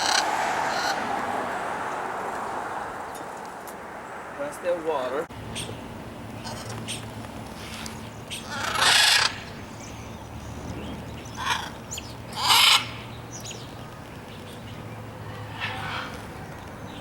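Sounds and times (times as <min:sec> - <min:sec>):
birds squawking harshly: 0:00.0 - 0:01.1, 0:06.4 - 0:13.7, 0:15.2 - 0:16.4.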